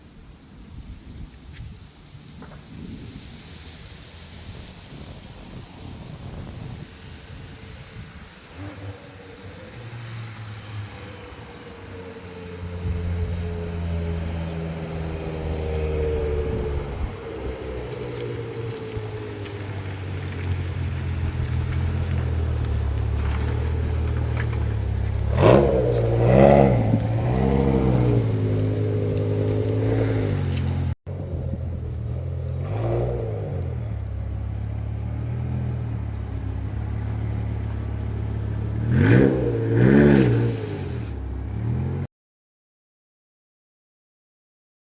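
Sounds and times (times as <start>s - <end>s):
car engine idling: 5.4s - 42.0s
engine throttle blips: 6.4s - 42.1s.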